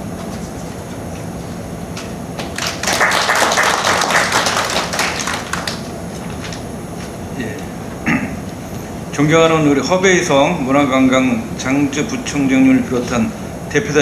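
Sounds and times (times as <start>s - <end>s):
audience applauding: 2.0s - 6.6s.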